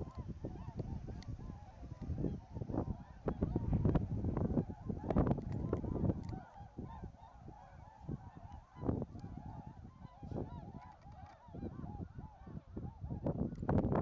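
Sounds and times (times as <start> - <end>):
low rumble: 3.3 - 5.4.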